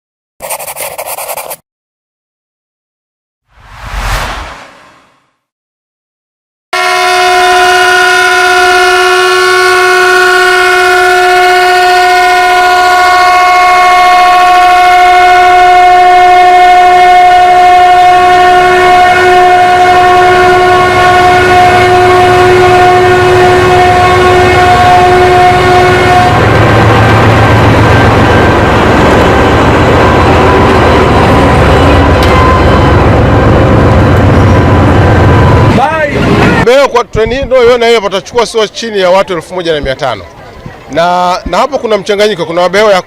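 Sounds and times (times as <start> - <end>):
low rumble: 3.5 - 5.3
locomotive horn blast: 6.8 - 35.7.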